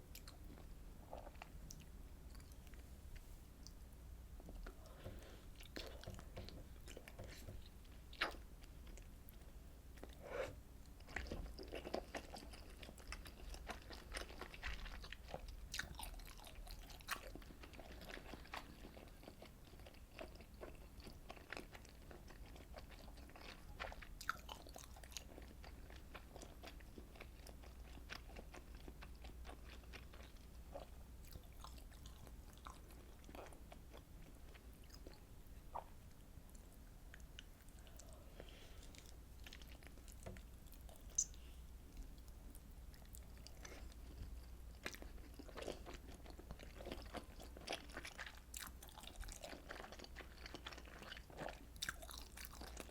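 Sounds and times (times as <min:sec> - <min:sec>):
close chewing with mouth clicks: 0:10.8 - 0:52.9.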